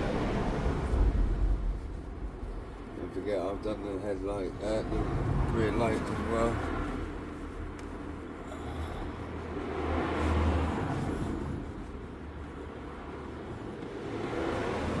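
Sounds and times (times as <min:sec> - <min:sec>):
vehicle passing by rumble: 0:00.0 - 0:07.5.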